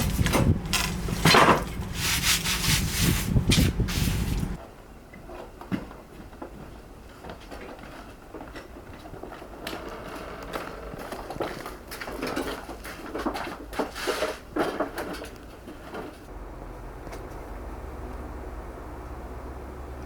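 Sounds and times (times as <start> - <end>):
tools set down: 0.0 - 1.8.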